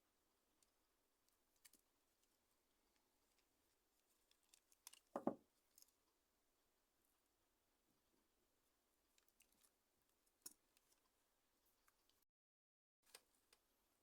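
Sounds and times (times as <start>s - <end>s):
small clicks of phone parts: 4.3s - 5.1s
knock: 5.2s - 5.4s.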